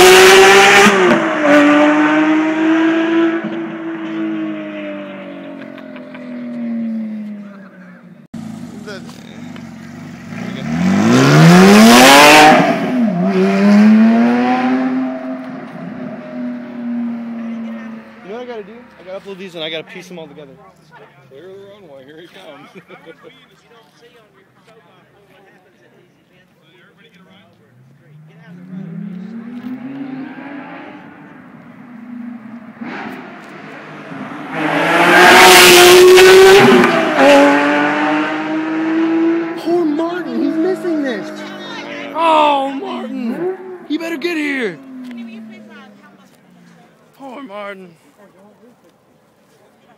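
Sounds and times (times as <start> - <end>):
sports car accelerating past: 0.0 - 5.6, 6.3 - 7.5, 9.4 - 18.3, 27.7 - 42.3, 43.2 - 46.6.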